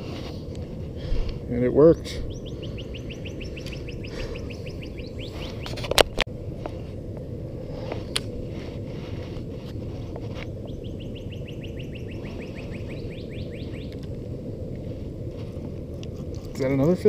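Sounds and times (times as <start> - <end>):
steady low rumble: 0.0 - 17.0
songbird whistled trill: 2.2 - 5.7, 10.6 - 14.0.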